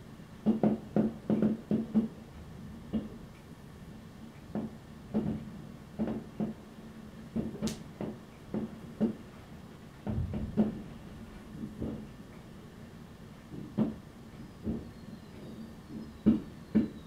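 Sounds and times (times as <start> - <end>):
distant fireworks bangs: 10.0 - 11.0, 14.6 - 17.0.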